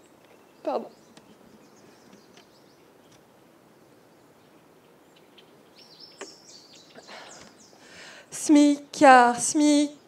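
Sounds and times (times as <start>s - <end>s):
small bird chirping: 0.0s - 3.2s, 3.9s - 7.8s.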